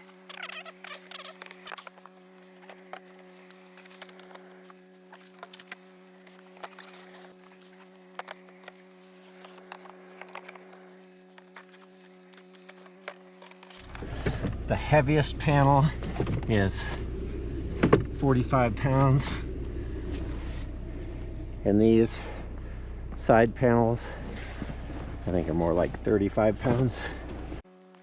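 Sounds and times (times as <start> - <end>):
clicks taps and rustling of gear: 0.1 - 14.6
steady low hum: 1.4 - 27.6.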